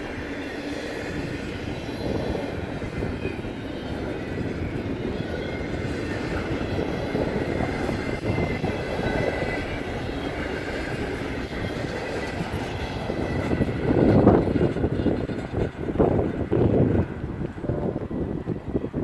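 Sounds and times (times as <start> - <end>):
freight train rolling past: 0.0 - 19.0.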